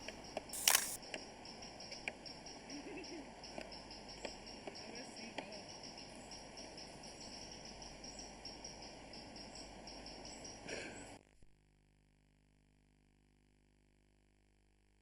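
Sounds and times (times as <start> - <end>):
crickets chirping: 0.1 - 10.6
background hiss: 0.6 - 1.0.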